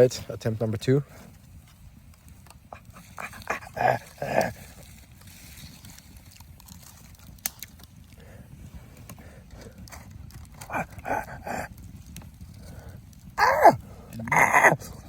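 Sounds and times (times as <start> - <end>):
person huffing and whimpering: 3.2 - 4.6, 10.7 - 11.7, 13.4 - 15.0.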